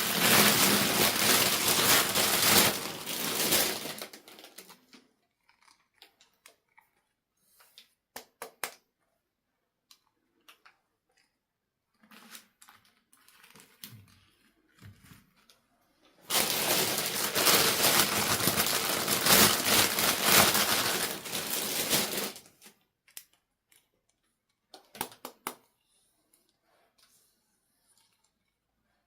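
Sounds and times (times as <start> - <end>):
packaging crinkling and crushing: 0.0 - 5.8, 16.2 - 23.4.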